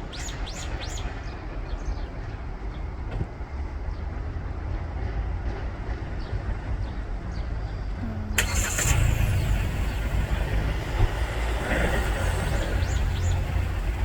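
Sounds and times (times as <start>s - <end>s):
motor traffic rumble: 0.0s - 14.0s
engine note sliding down: 8.1s - 14.0s.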